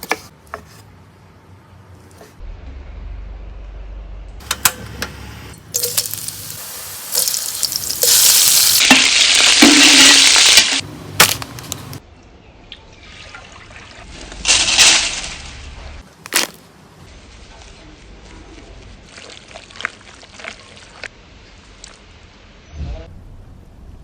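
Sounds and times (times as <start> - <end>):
food sizzling in a pan: 5.8 - 10.8
utensils clinking: 5.8 - 12.0.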